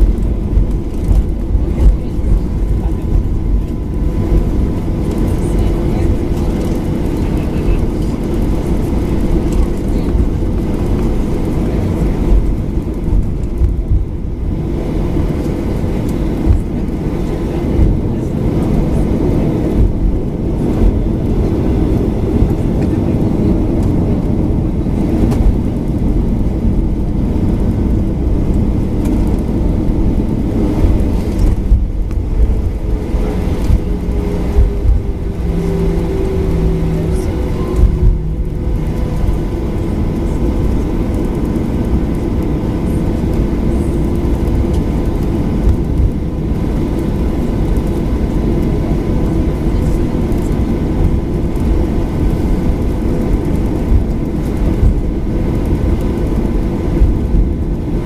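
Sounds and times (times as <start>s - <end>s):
jet cabin engine rumble: 0.0s - 58.0s.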